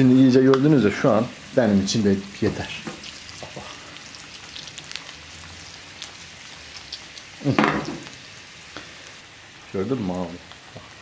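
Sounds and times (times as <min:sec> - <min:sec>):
eggs and sausage frying in a pan: 0:00.0 - 0:11.0
small pops and crackles: 0:02.8 - 0:03.8.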